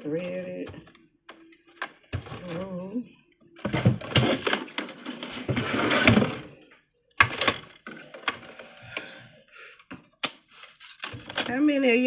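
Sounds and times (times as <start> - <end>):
plastic parts clicking: 7.1 - 9.2
packaging rustling: 10.5 - 11.5.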